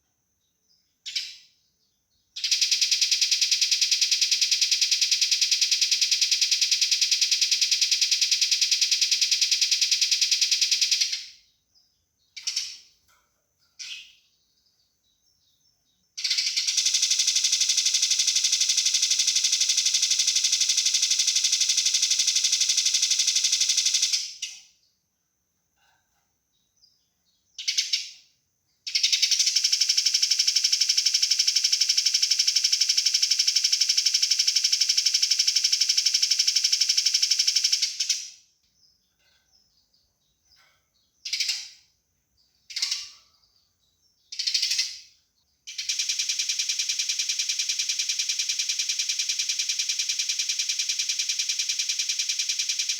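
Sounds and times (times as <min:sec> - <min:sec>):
sparrows chirping: 0:00.4 - 0:25.0, 0:26.5 - 0:28.2, 0:38.6 - 0:46.0
rapid rattling bird calls: 0:01.0 - 0:01.6, 0:02.2 - 0:14.5, 0:15.4 - 0:24.8, 0:27.5 - 0:28.2, 0:28.9 - 0:52.9.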